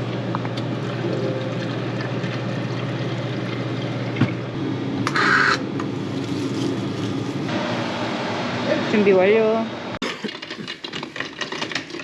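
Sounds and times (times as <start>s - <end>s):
soda fountain pouring drink: 0.8s - 4.5s.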